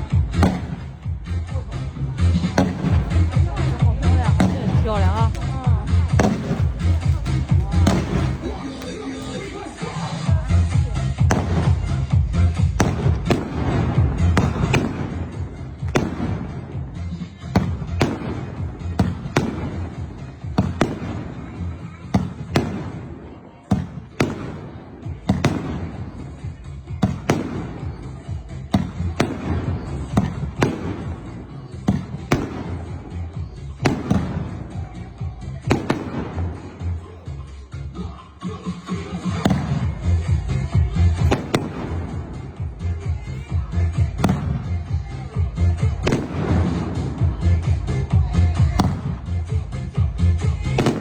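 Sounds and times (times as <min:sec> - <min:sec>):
fireworks low rumble: 0:00.0 - 0:51.0
fireworks sharp cracks: 0:00.0 - 0:51.0.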